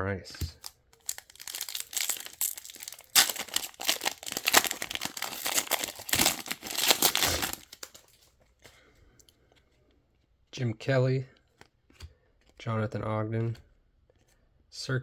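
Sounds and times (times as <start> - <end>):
wrapper being torn open: 0.6 - 8.2
wrapper crinkling: 0.6 - 8.2.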